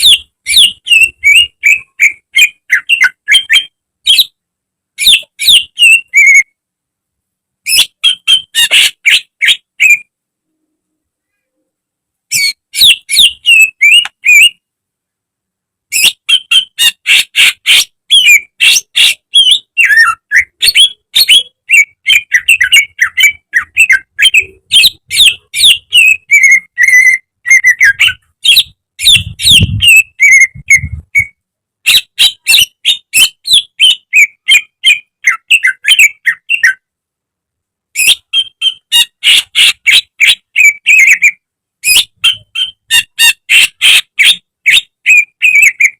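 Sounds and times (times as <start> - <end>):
bird singing sharp repeated notes: 0.0 - 4.4, 5.0 - 6.6, 7.6 - 10.1, 12.3 - 14.7, 15.9 - 36.9, 38.0 - 45.9.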